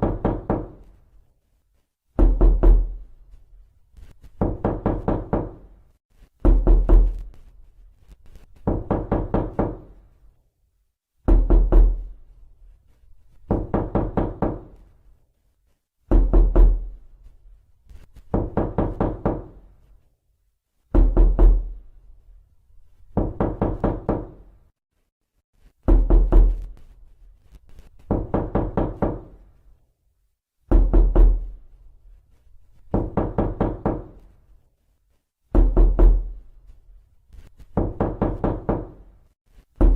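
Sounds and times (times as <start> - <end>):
rapid knocking on a door: 0.0 - 0.9, 2.2 - 3.0, 4.3 - 5.7, 6.4 - 7.2, 8.6 - 10.0, 11.2 - 12.1, 13.5 - 14.8, 16.1 - 16.9, 18.2 - 19.6, 20.9 - 21.7, 23.1 - 24.5, 25.8 - 26.7, 28.0 - 29.4, 30.7 - 31.6, 32.9 - 34.2, 35.5 - 36.4, 37.7 - 39.1.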